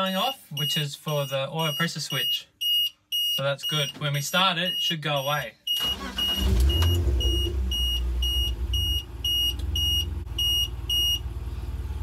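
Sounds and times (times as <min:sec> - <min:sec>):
alarm beeping: 0:04.7 - 0:11.2
car engine starting and idling: 0:05.8 - 0:12.0.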